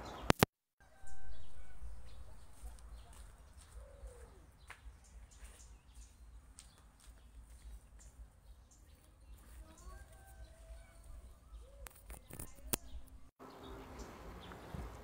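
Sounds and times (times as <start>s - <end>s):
bird calling: 0.9s - 6.0s, 8.8s - 14.6s.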